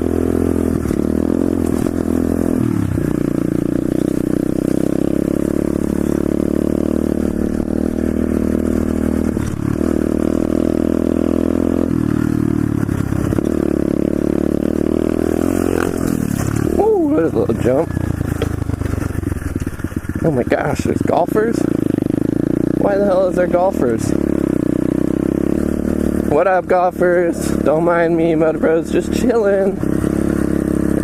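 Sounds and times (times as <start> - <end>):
motorbike engine under throttle: 0.0 - 31.0.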